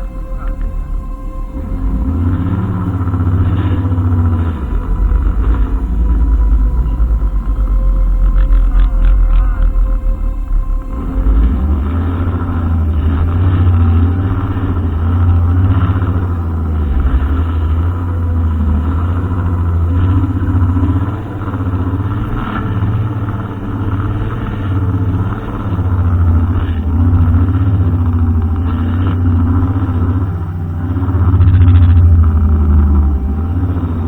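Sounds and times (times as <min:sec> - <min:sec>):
brushcutter engine running: 0:00.0 - 0:34.0.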